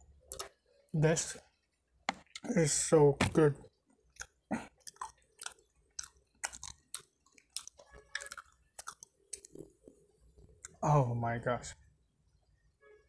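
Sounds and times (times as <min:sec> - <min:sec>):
person chewing food: 0:04.0 - 0:10.8.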